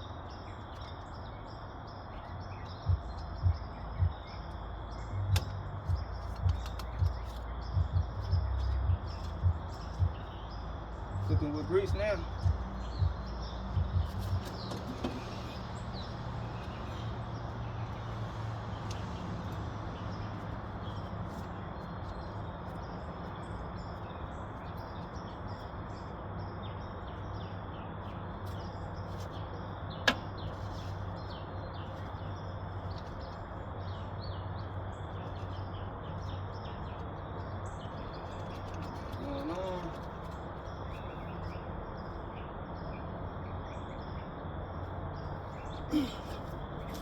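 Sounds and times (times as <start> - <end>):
birds chirping: 0.0 - 47.0
tractor engine idling: 2.6 - 25.6.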